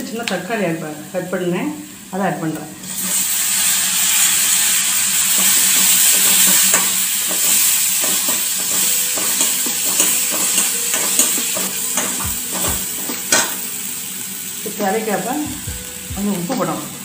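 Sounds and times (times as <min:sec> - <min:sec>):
tomatoes sizzling in oil: 0:00.0 - 0:17.0
steel spoon scraping pan: 0:05.3 - 0:13.5.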